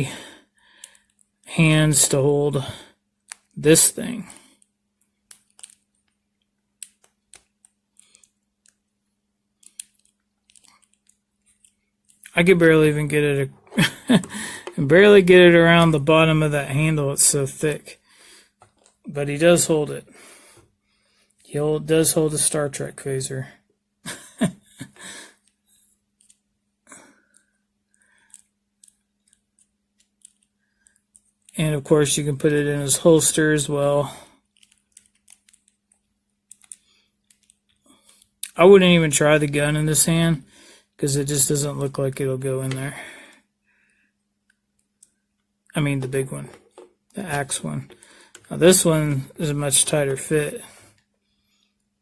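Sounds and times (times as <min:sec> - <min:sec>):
plastic toy clicking and rubbing: 0:04.6 - 0:08.9, 0:09.6 - 0:12.4, 0:25.4 - 0:26.5, 0:28.3 - 0:31.6, 0:34.3 - 0:38.5, 0:46.0 - 0:48.6.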